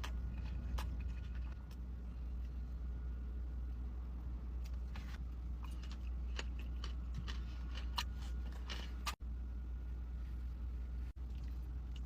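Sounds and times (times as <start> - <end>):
person chewing food: 0.0 - 2.5, 4.7 - 9.2
steady low hum: 0.0 - 12.0.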